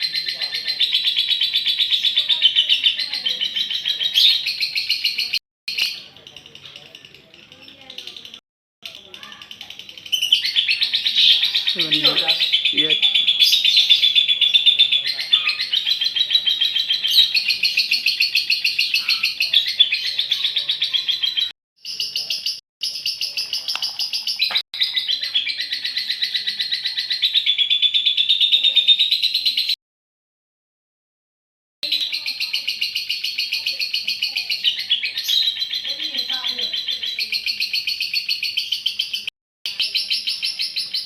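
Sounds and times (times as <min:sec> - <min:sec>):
lovebird chattering song: 0:00.0 - 0:29.8, 0:31.8 - 0:41.0.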